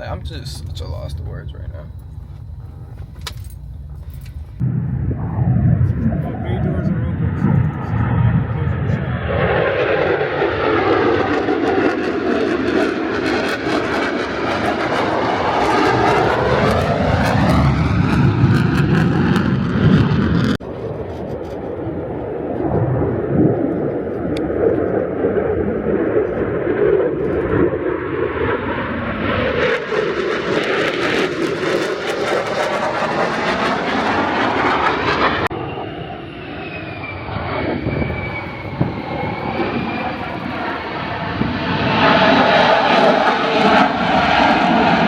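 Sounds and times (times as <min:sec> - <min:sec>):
faint wavering whine: 0:00.0 - 0:09.2, 0:35.5 - 0:41.4
jet aircraft roaring past: 0:00.0 - 0:45.0.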